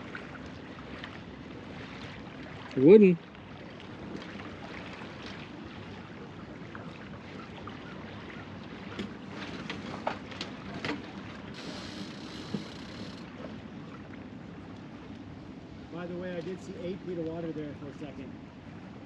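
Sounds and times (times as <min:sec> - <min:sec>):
boat engine drone: 0:00.0 - 0:19.0
water along hull: 0:00.0 - 0:19.0
wind hiss: 0:11.5 - 0:13.2.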